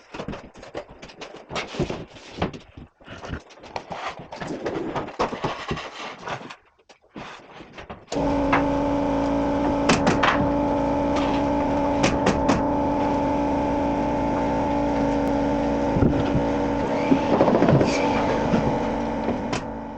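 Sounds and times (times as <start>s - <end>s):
steady machine hum: 8.2s - 19.9s.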